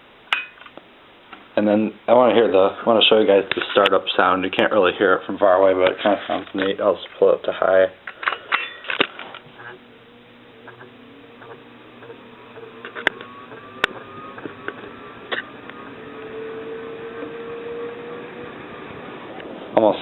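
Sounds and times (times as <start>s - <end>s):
ceiling fan motor whine: 8.5s - 20.0s.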